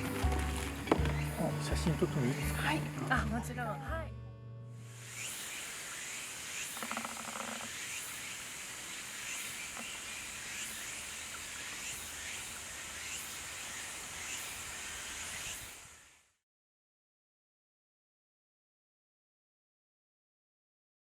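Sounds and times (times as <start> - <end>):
insects calling: 0.0 - 3.2, 5.0 - 16.4.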